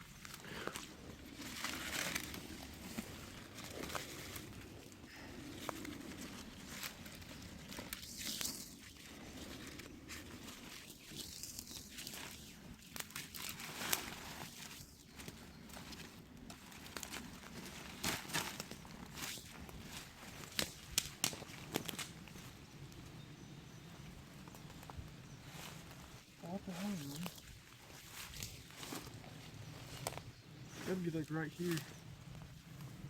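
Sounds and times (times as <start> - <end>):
rustling and crunching undergrowth: 0.0 - 33.0
twigs snapping: 0.2 - 23.2, 26.7 - 30.3.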